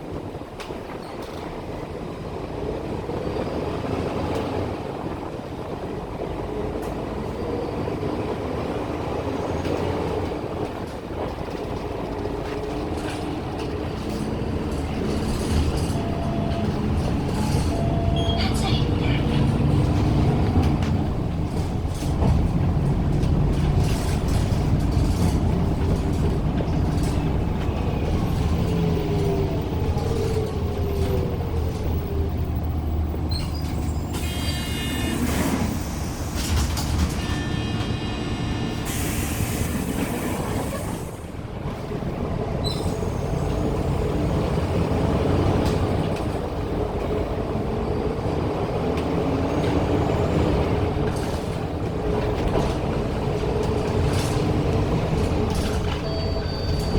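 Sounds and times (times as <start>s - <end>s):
bus engine running: 0.0s - 56.9s
loud hiss of air: 38.7s - 41.2s.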